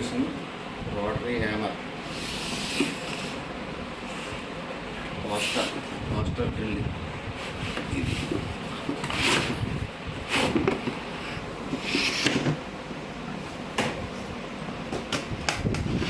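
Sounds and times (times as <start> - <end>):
cardboard box scraping and rustling: 8.2 - 9.7.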